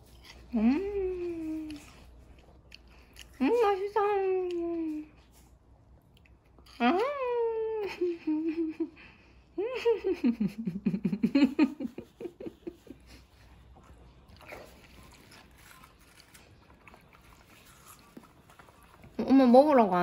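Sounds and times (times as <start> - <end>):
watermelon being chewed: 0.0 - 7.4, 11.8 - 20.0.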